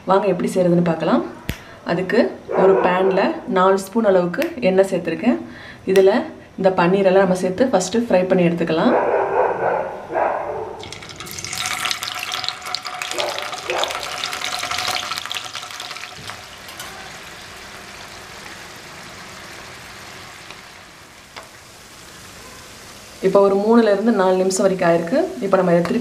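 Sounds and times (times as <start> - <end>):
paneer sizzling in hot oil: 10.8 - 26.0.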